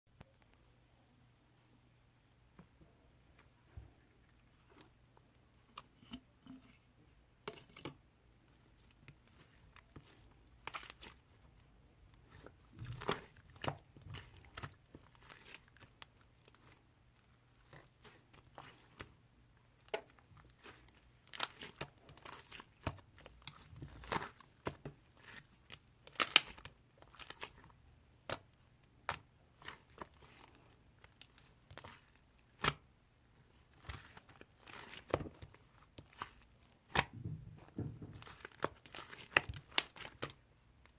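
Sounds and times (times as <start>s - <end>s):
slime popping and crackling: 9.8s - 11.3s, 12.2s - 16.8s, 19.8s - 27.6s, 33.6s - 37.2s, 38.1s - 40.4s.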